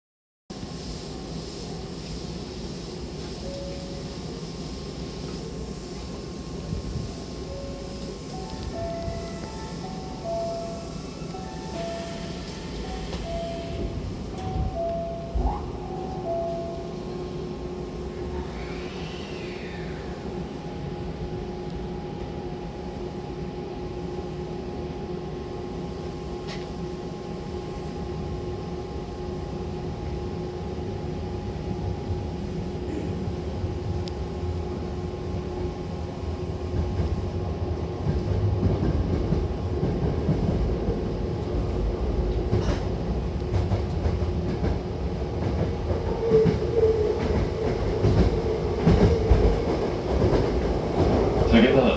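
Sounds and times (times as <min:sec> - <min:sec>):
steady train motor tones: 0:03.0 - 0:22.3.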